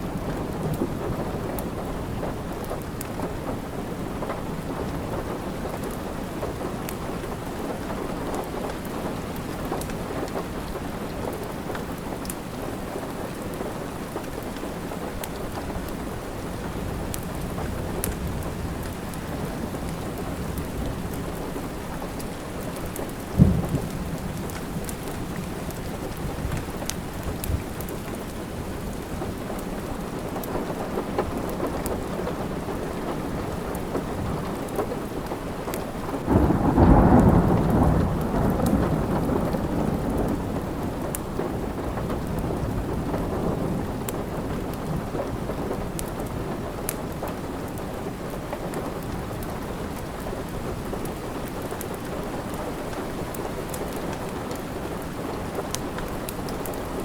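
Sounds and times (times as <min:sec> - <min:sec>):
rain falling: 0:00.0 - 0:57.0
thunder rumbling: 0:16.7 - 0:29.4, 0:36.2 - 0:46.0.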